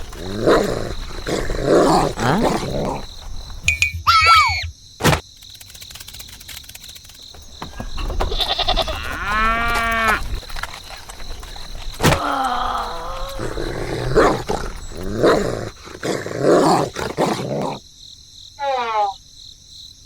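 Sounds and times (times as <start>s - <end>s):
animal growling: 0.0s - 3.4s, 7.9s - 17.8s
animal wavering call: 3.8s - 4.7s, 18.6s - 19.2s
short falling animal call: 4.0s - 4.7s, 18.6s - 19.2s.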